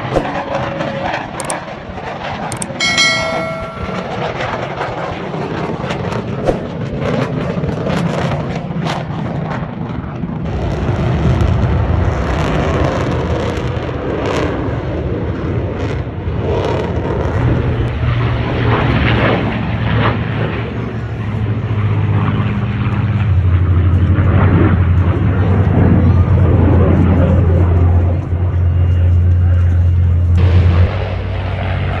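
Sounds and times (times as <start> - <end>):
aircraft engine rumble: 17.3 - 32.0.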